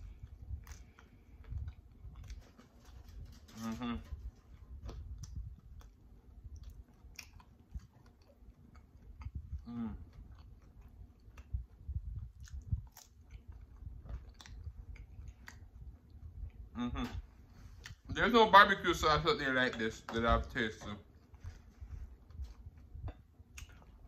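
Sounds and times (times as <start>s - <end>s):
person chewing with wet mouth sounds: 0.0s - 18.1s, 20.7s - 24.0s
person humming: 3.5s - 4.2s, 16.8s - 17.2s.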